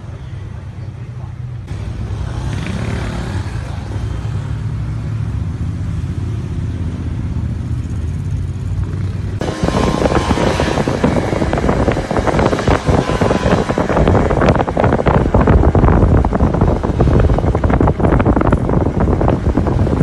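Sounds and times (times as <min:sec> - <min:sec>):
road traffic rumble: 0:00.0 - 0:20.0
wind buffeting microphone: 0:09.1 - 0:20.0.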